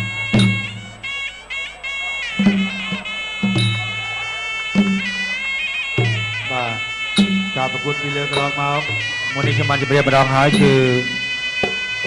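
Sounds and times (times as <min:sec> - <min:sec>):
shrill reed oboe melody: 0:00.0 - 0:12.0.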